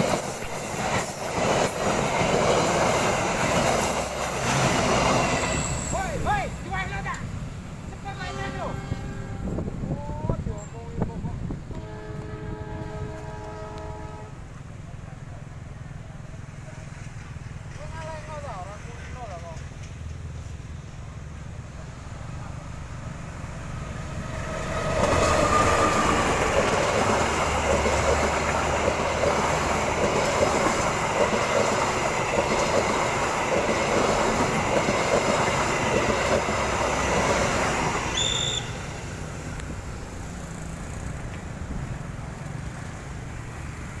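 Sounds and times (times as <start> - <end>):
train passing close by: 0.0 - 44.0
brief high squeal: 5.4 - 6.3, 38.1 - 38.8.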